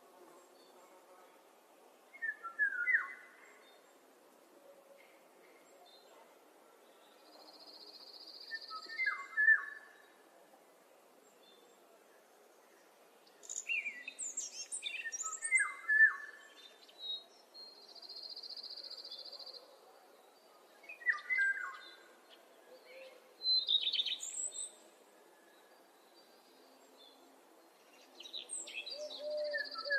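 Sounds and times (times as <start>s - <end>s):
songbirds singing: 6.8s - 10.3s, 12.6s - 29.9s.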